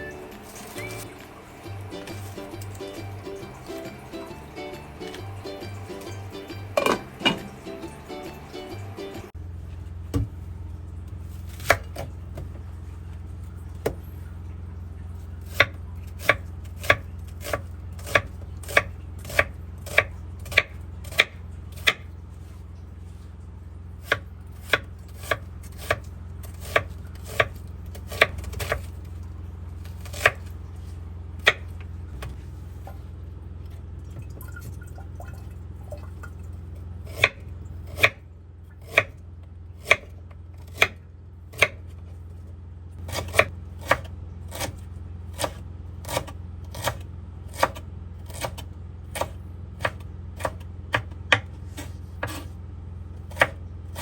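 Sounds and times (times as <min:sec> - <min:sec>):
knife chopping on cutting board: 0:06.8 - 0:07.5, 0:11.5 - 0:12.6, 0:15.4 - 0:22.1, 0:24.0 - 0:28.9, 0:30.0 - 0:30.5, 0:39.8 - 0:41.8, 0:43.0 - 0:52.5, 0:53.3 - 0:54.0.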